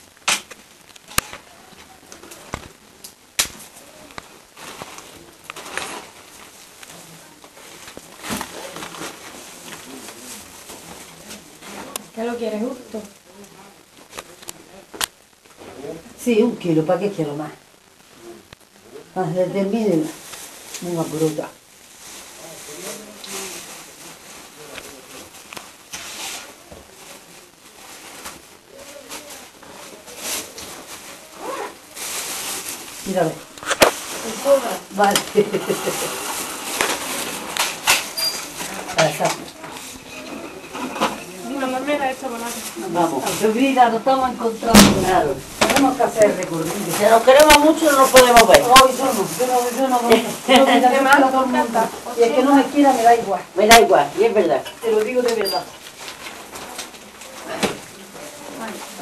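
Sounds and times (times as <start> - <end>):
faint voices: 0.0 - 59.0
steady background hiss: 0.0 - 59.0
rustling bursts: 19.9 - 59.0.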